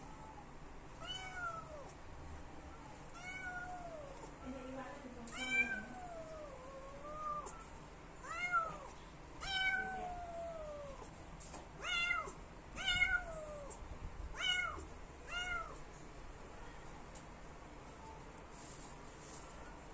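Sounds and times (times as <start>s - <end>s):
kitten meowing: 1.0s - 1.9s, 3.2s - 4.3s, 5.3s - 11.0s, 11.8s - 13.8s, 14.4s - 15.8s.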